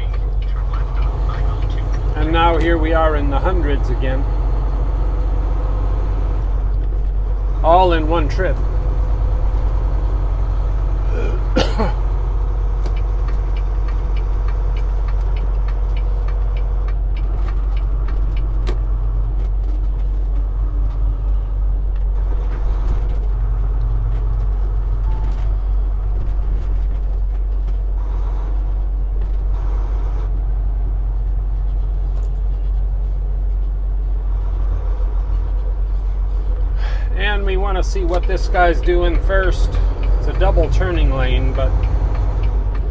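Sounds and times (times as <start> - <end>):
road noise inside cab: 0.0 - 42.9
truck diesel engine rumble: 0.0 - 42.9.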